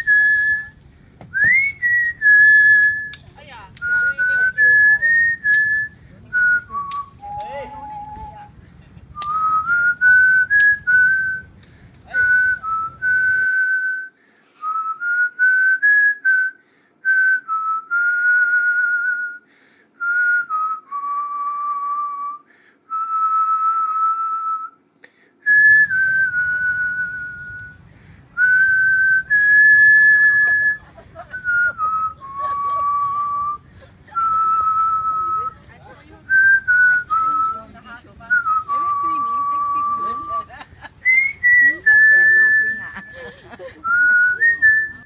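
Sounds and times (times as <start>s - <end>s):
person whistling a tune: 0.0s - 3.2s, 3.8s - 8.5s, 9.1s - 11.5s, 12.1s - 24.8s, 25.5s - 27.8s, 28.4s - 35.6s, 36.3s - 45.0s.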